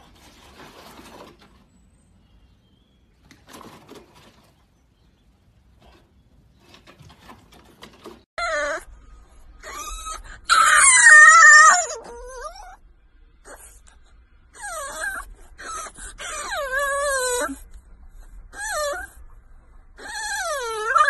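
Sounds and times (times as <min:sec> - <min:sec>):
puppy howling: 0:08.4 - 0:09.0, 0:09.6 - 0:12.8, 0:14.5 - 0:21.0.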